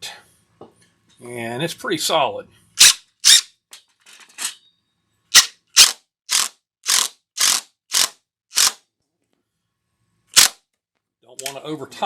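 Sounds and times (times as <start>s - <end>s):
cordless drill clicking bursts: 5.4s - 8.8s.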